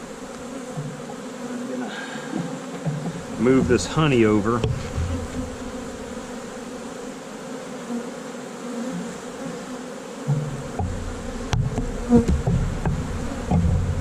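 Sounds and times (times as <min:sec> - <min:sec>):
bee colony buzzing: 0:00.0 - 0:14.0
sharp knocks: 0:02.3 - 0:05.8, 0:10.3 - 0:14.0
low rumbling: 0:03.2 - 0:06.3, 0:10.8 - 0:14.0.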